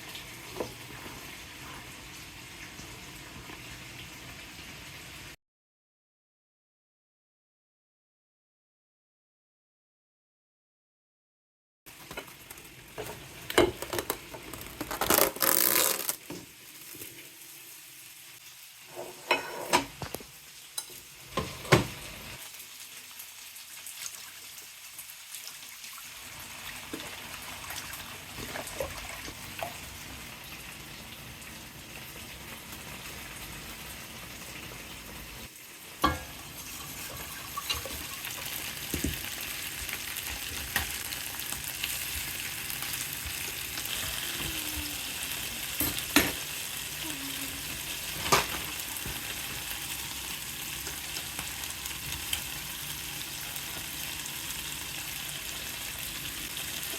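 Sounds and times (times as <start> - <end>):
food sizzling in a frying pan: 0.0 - 5.4, 11.9 - 56.9
cookware clattering: 18.9 - 20.1, 36.0 - 39.2, 45.7 - 46.4, 48.2 - 48.8.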